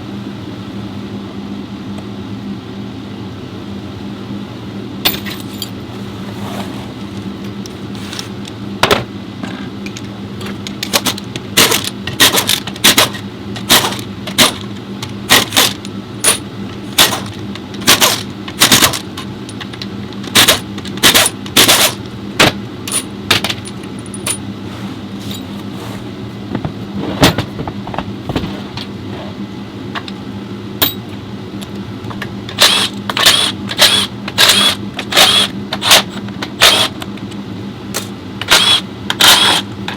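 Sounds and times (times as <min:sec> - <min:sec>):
low workshop hum: 0:00.0 - 0:39.9
metal tools clanking: 0:05.1 - 0:06.1, 0:07.4 - 0:22.0, 0:22.8 - 0:24.5, 0:25.2 - 0:25.9, 0:30.8 - 0:31.2.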